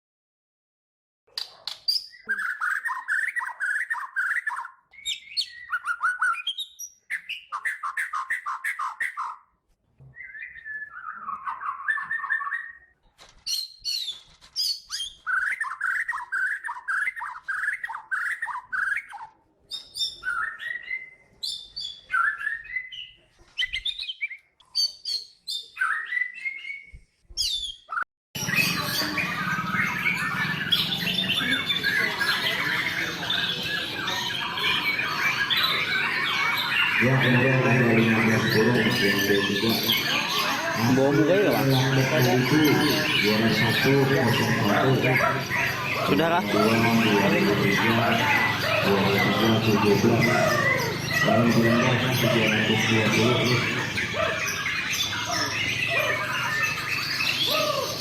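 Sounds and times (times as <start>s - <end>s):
many birds singing: 1.4s - 9.5s, 10.1s - 58.0s
bird singing whistles and trills: 1.8s - 9.4s, 10.1s - 58.0s.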